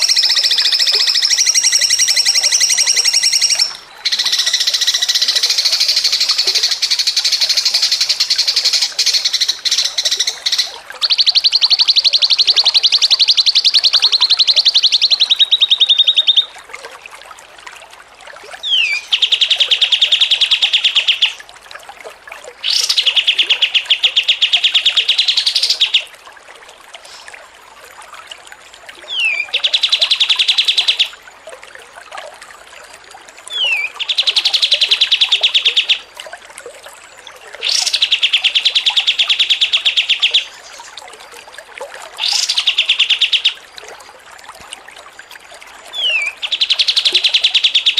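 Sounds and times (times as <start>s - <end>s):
songbird chattering trill: 0.0s - 6.4s.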